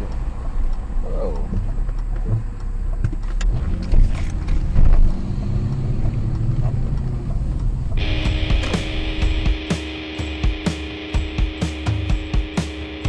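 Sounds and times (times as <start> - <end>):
car engine rumbling: 0.0 - 9.7.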